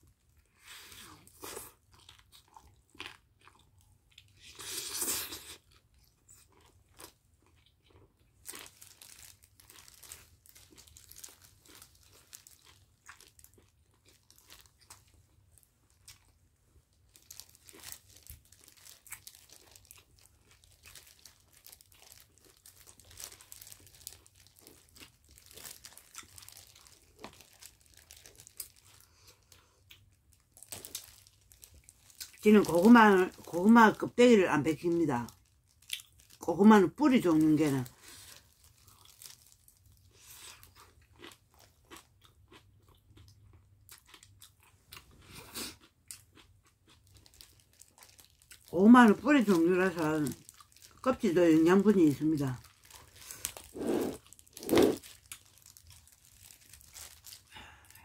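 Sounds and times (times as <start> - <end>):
chewing food: 0.4 - 33.6, 35.2 - 36.4, 37.8 - 51.1, 52.4 - 57.5
plastic gloves crinkling: 8.5 - 16.3, 16.9 - 29.5, 30.3 - 40.7, 47.0 - 58.0
loud bite: 53.5 - 55.1.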